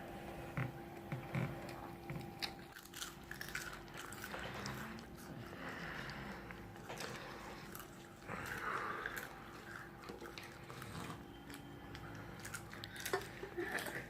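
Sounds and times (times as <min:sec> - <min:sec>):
person chewing crunchy food: 0:00.4 - 0:14.0.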